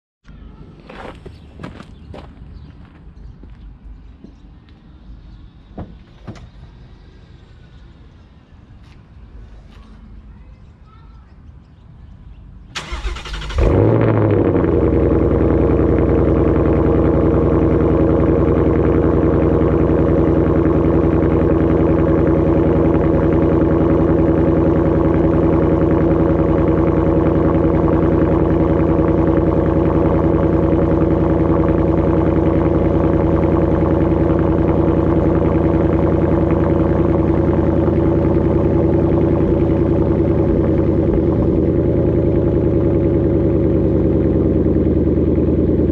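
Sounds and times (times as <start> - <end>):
car engine starting and idling: 12.7 - 45.9
starter motor cranking: 12.8 - 14.0.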